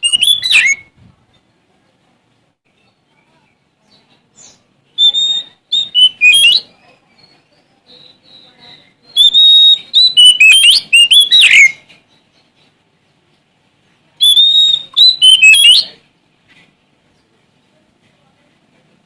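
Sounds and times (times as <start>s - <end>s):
bird singing whistled notes: 0.0s - 1.0s, 3.8s - 12.7s, 14.2s - 16.0s.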